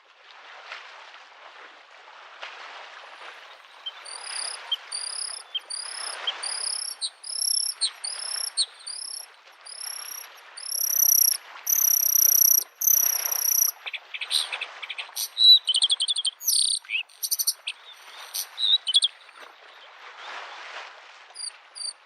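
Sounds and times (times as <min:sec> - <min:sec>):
lake waves washing on shore: 0:00.3 - 0:22.0
bird singing whistled notes: 0:03.6 - 0:19.2, 0:21.4 - 0:22.0.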